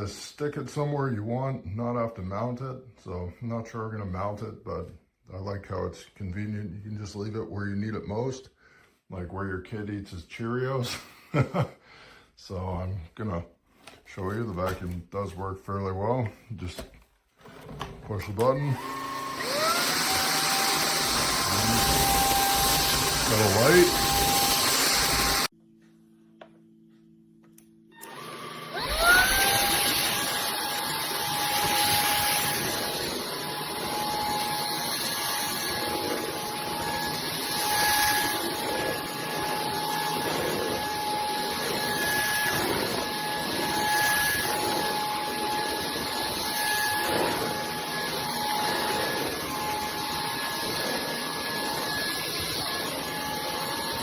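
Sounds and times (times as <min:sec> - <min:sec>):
stick vacuum motor whining: 0:17.4 - 0:25.5, 0:28.0 - 0:54.0.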